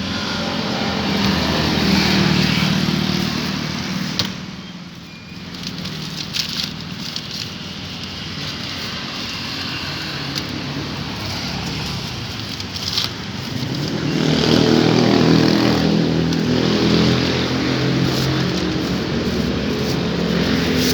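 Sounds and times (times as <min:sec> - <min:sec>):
street noise: 0:00.0 - 0:20.9
vehicle engine running: 0:10.3 - 0:20.9.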